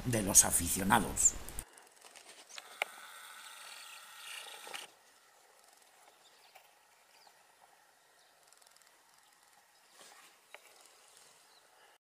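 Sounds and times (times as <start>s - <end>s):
small birds twittering: 5.9s - 11.9s.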